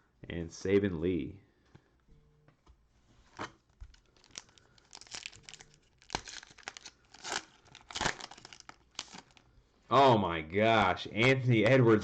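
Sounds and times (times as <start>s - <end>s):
cellophane crinkling and tearing: 3.4s - 9.5s.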